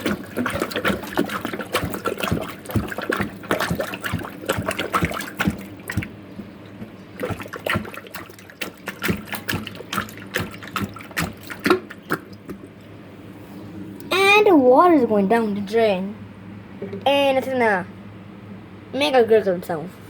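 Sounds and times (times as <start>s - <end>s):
water splashing in a sink: 0.0s - 12.9s
plunger knocks: 16.8s - 17.1s.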